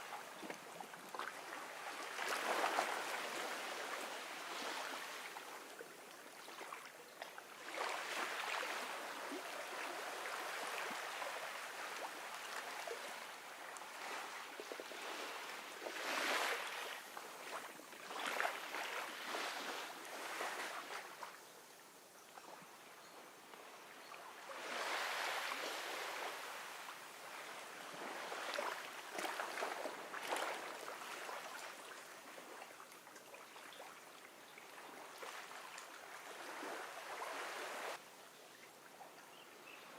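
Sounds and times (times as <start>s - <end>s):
ocean waves washing onto beach: 24.4s - 32.4s, 35.1s - 38.0s.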